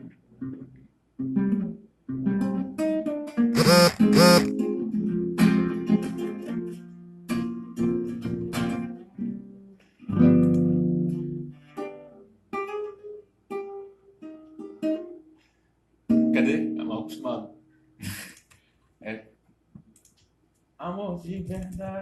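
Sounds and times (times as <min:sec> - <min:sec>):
acoustic guitar strumming: 0:03.6 - 0:04.7.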